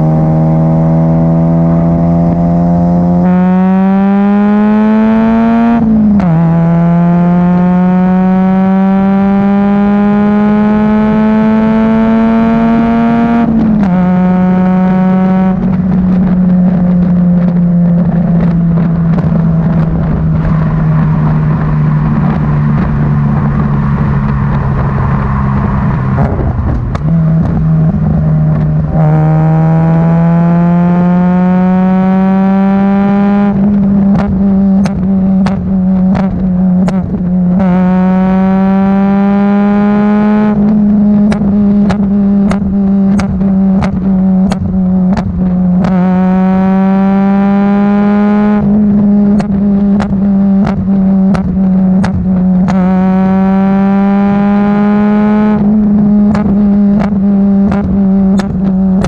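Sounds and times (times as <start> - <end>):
car engine revving: 0.0 - 59.0
exhaust pops: 15.4 - 29.2, 33.5 - 37.8, 40.6 - 46.1, 48.5 - 53.2, 55.5 - 59.0.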